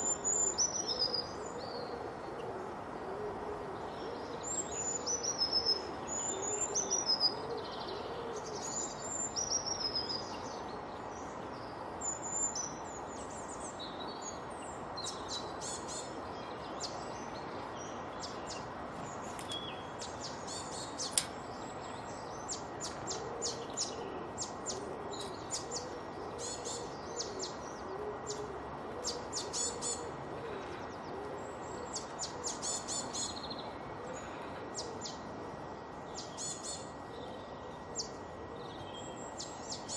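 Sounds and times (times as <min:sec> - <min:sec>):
birds singing and calling: 0:00.0 - 0:02.5, 0:03.8 - 0:35.3, 0:35.9 - 0:39.9
steady background hiss: 0:00.0 - 0:39.9
low hooting bird calls: 0:22.0 - 0:39.9.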